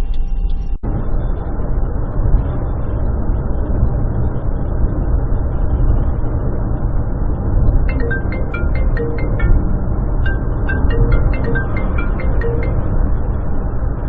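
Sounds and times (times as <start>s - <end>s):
high musical notes: 7.9s - 13.2s.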